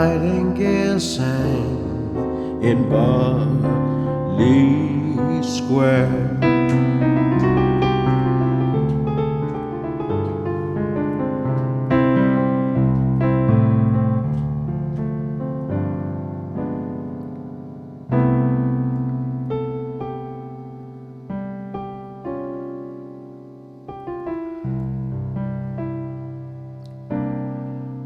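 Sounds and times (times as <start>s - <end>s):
piano chords: 0.0s - 28.0s.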